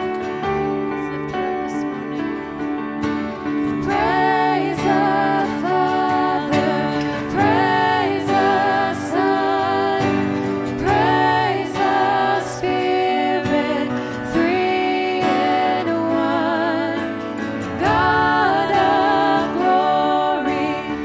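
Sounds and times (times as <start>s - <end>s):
sustained keyboard chords: 0.0s - 21.0s
person singing with vibrato: 3.5s - 21.0s.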